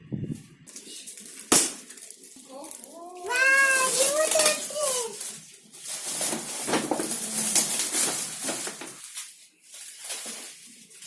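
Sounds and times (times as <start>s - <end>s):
cardboard box rustling: 3.6s - 9.0s.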